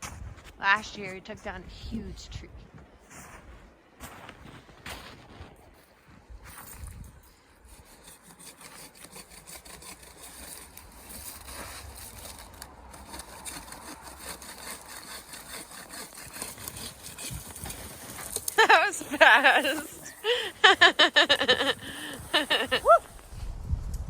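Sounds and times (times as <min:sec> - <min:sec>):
saw cutting tree trunk: 0:07.5 - 0:22.8.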